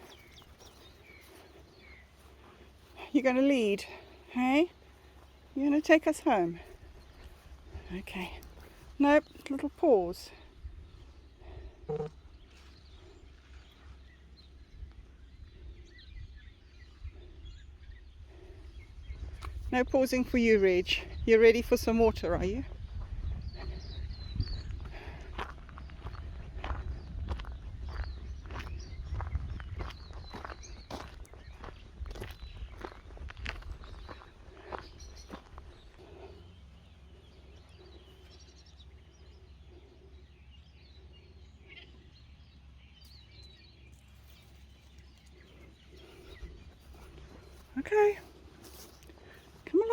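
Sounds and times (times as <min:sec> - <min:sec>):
faint birds chirping: 0:00.0 - 0:49.9
faint bird chirps: 0:10.5 - 0:19.6.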